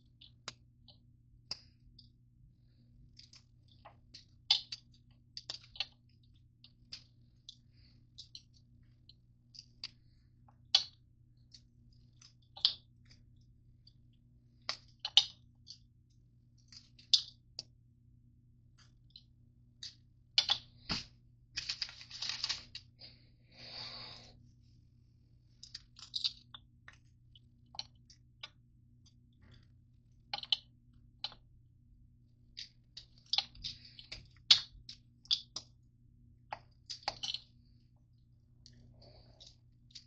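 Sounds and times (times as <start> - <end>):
granola bars cracking and crunching: 21.6 - 22.8
wrapper rustling: 21.6 - 22.8.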